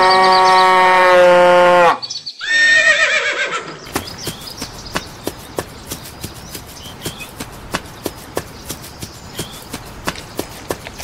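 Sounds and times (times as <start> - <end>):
horse whinny: 0.3 - 3.8
hoof clip-clops: 3.9 - 11.0.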